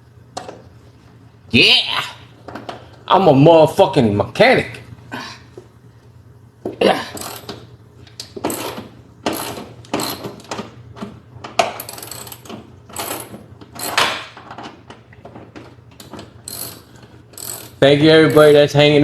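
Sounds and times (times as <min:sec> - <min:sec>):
ratchet wrench clicking: 0:07.1 - 0:07.6, 0:08.2 - 0:10.6, 0:11.5 - 0:14.6, 0:16.0 - 0:17.8.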